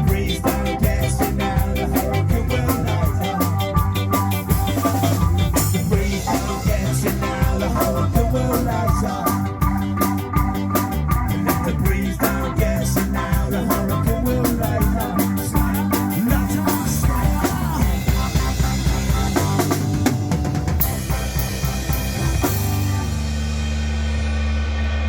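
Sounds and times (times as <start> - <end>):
rock band playing: 0.0 - 25.0.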